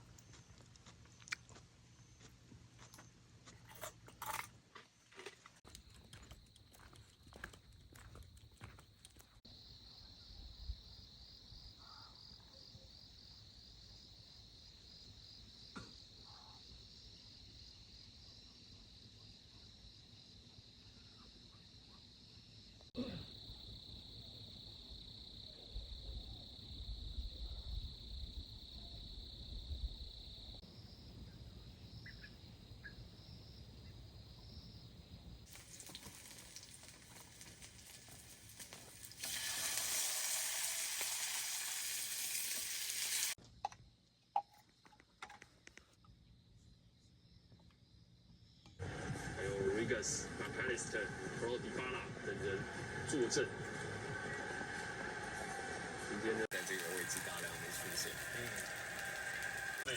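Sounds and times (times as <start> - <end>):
insects chirping: 0.0 - 48.8, 56.5 - 59.9
steady hiss: 56.5 - 59.9.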